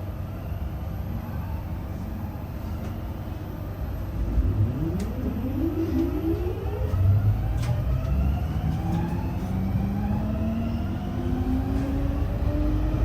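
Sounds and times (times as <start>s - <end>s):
vehicle engine accelerating: 4.3s - 13.0s.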